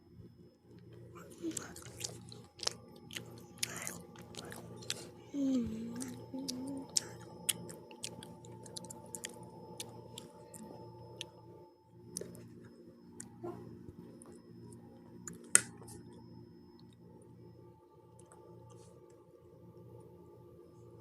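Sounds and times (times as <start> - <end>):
chewing with wet mouth clicks: 0.7 - 5.2, 5.9 - 11.4, 12.1 - 13.4, 14.0 - 16.1, 18.1 - 19.2.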